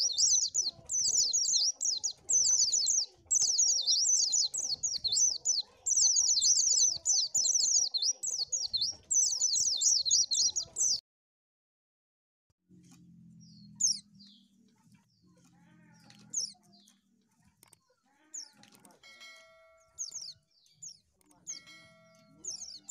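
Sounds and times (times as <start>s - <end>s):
bird twittering song: 0.0s - 11.0s, 13.2s - 18.8s, 19.4s - 22.9s
faint low hum: 12.7s - 17.6s.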